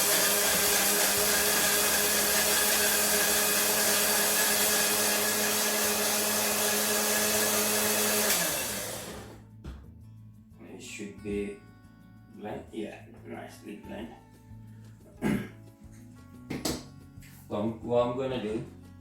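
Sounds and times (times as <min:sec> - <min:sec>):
electric blender motor whine: 0:00.0 - 0:09.4.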